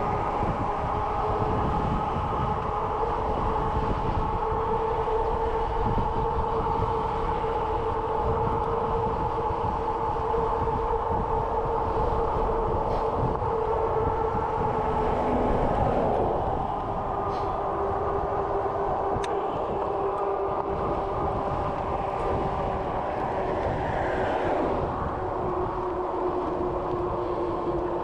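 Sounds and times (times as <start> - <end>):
bicycle tyres rumbling on road: 0.0 - 28.0
steady hum: 0.0 - 28.0
wind noise: 0.0 - 28.0.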